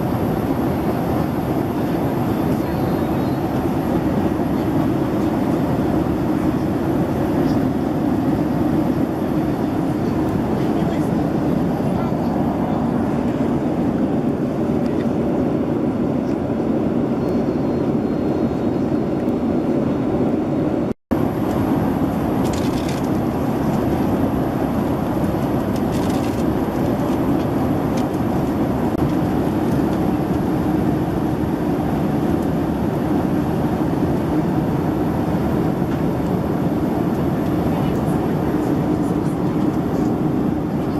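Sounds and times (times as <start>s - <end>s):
airplane cabin noise in flight: 0.0s - 40.9s.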